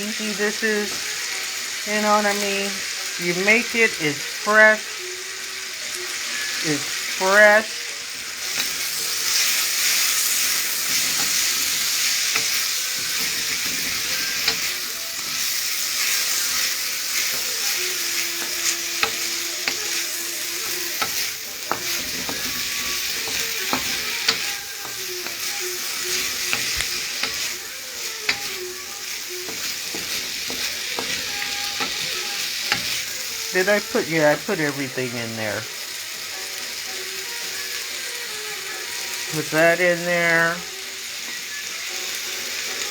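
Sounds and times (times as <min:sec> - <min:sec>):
food sizzling in a wok: 0:00.0 - 0:42.9
utensil clicking against pan: 0:08.4 - 0:33.3.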